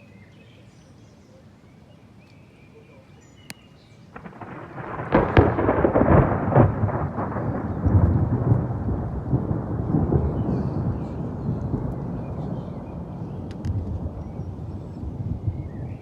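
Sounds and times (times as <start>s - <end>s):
thunderclap rolling rumble: 4.2s - 16.0s.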